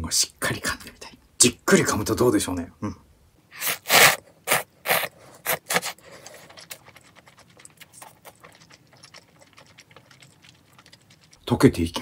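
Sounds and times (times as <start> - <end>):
noodles slurped: 3.5 - 12.0
chewing mouth clicks and smacks: 5.7 - 11.5.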